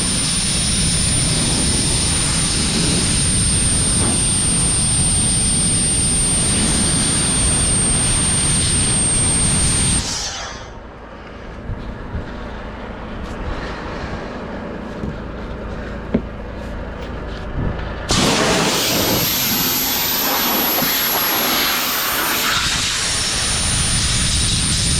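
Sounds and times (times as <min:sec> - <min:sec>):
air blower roaring: 0:00.0 - 0:24.9
high steady whine: 0:00.0 - 0:24.9
low rumble: 0:09.6 - 0:21.3.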